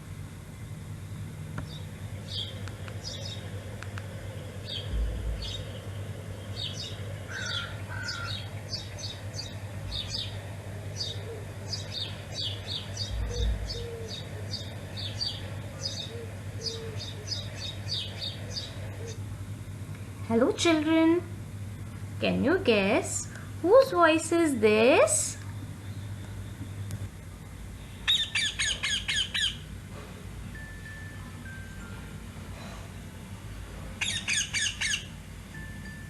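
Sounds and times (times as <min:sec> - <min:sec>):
steady low hum: 0:00.0 - 0:36.0
small birds chirping: 0:01.6 - 0:19.2, 0:27.8 - 0:29.7, 0:34.0 - 0:35.2
low thumps: 0:04.8 - 0:05.6.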